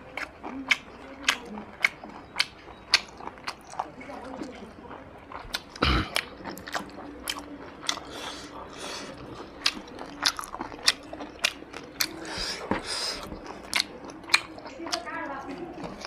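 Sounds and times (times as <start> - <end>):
person chewing with mouth smacking: 0.0 - 16.0.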